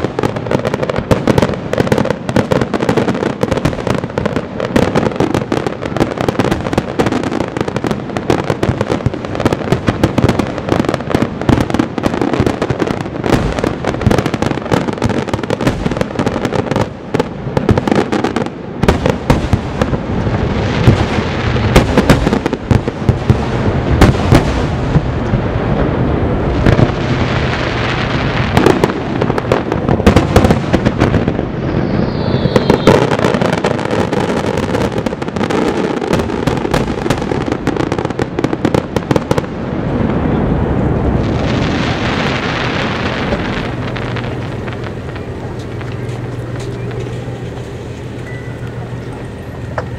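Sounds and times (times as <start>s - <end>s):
crackling fireworks: 0.0s - 49.9s
fireworks bursting: 0.0s - 49.9s
falling firework whistle: 30.1s - 36.0s.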